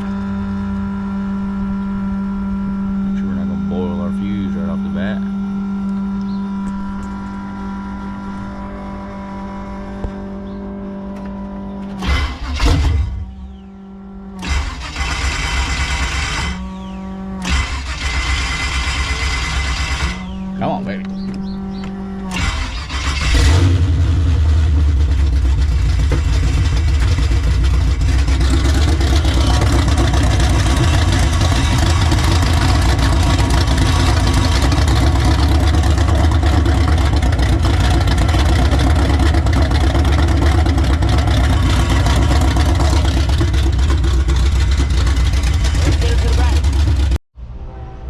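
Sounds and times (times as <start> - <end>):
car engine cranking and starting: 9.8 - 13.6, 14.3 - 47.2.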